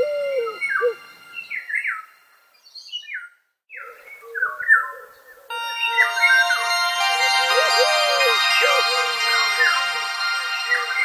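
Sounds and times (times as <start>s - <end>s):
steady music tones: 5.5s - 11.0s
sustained music chord: 5.5s - 11.0s.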